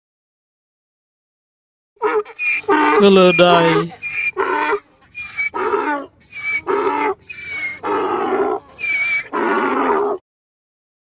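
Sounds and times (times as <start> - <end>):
donkey braying: 2.0 - 10.2.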